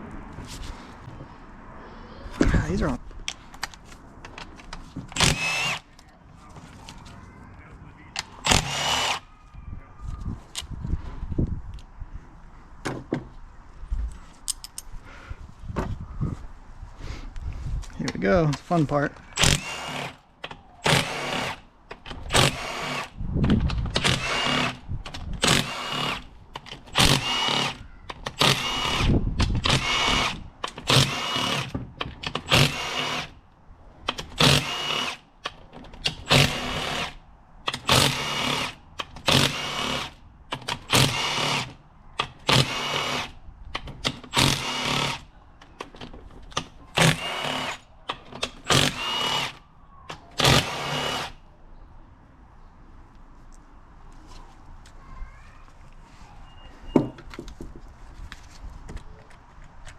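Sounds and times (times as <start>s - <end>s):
power tool whining bursts: 5.2s - 5.8s, 8.4s - 9.3s, 19.4s - 20.2s, 20.8s - 21.6s, 22.3s - 23.1s, 24.0s - 24.8s, 26.9s - 31.7s, 32.5s - 33.3s, 34.4s - 35.2s, 36.2s - 37.2s, 40.9s - 41.7s, 42.4s - 43.3s, 44.3s - 45.2s, 46.9s - 47.8s, 48.6s - 49.6s, 50.4s - 51.4s.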